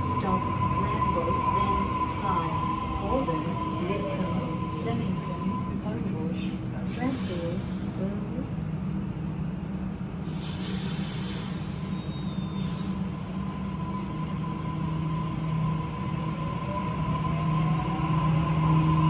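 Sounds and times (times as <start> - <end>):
electric train hum: 0.0 - 19.0
air hiss: 10.2 - 13.3.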